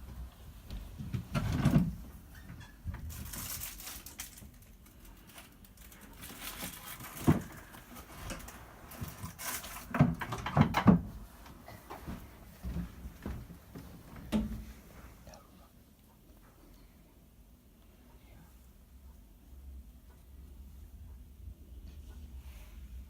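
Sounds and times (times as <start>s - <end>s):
freezing rain pattering on ice: 3.2s - 9.8s.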